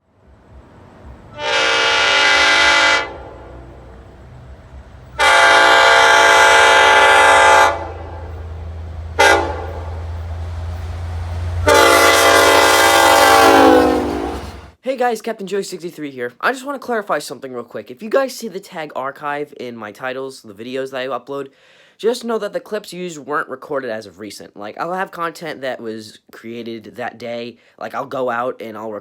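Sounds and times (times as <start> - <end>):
diesel engine rumbling: 0.0 - 14.8
locomotive air horn blasts: 1.3 - 4.0, 5.2 - 8.5, 9.1 - 10.1, 11.5 - 14.8.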